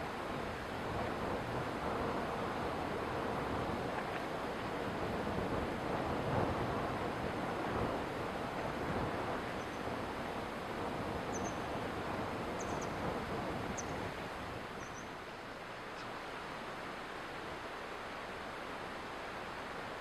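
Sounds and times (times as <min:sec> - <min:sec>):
stream flowing: 0:00.0 - 0:20.0
faint high bird chirps: 0:11.3 - 0:11.6, 0:12.6 - 0:13.0, 0:14.8 - 0:15.2.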